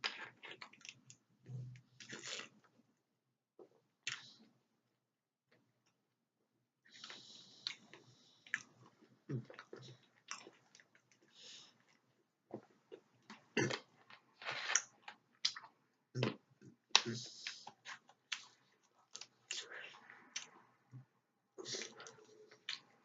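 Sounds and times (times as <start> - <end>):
person chewing sticky food: 7.0 - 11.2, 15.4 - 20.6.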